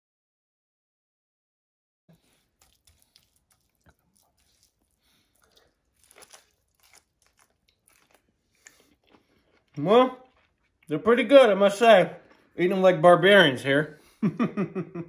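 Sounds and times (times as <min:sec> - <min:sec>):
crunching and chewing food: 0:02.1 - 0:12.8.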